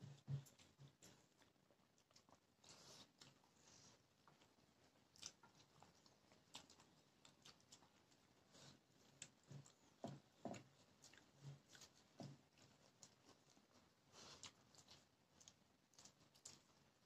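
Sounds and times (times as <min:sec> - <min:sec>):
faint chewing: 0:00.0 - 0:17.0.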